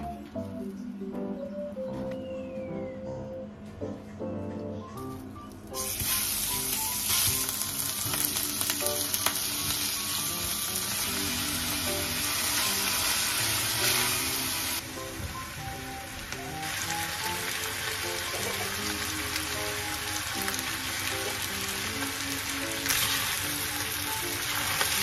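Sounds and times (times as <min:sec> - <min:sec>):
meat and onion sizzling in oil: 0:05.8 - 0:25.0.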